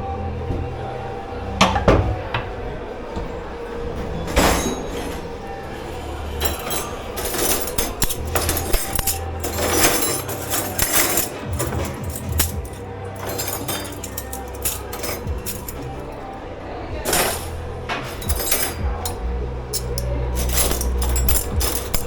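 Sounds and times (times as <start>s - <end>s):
dishes clinking and knocking: 1.6s - 2.6s, 6.4s - 16.2s, 17.0s - 22.0s.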